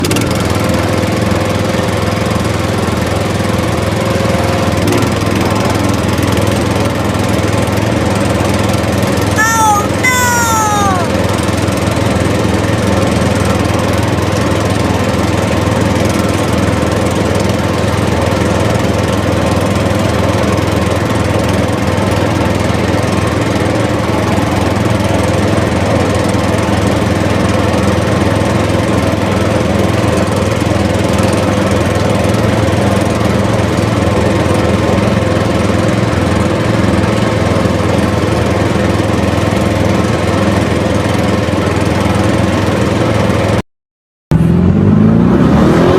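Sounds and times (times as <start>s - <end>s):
small engine droning: 44.3s - 45.9s.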